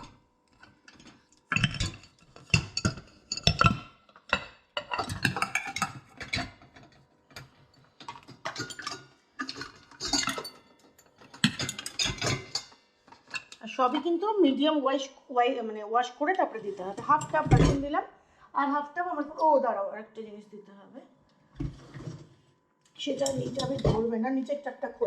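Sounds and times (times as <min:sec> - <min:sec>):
dishes and cutlery clattering: 0:00.0 - 0:13.6, 0:23.1 - 0:24.1.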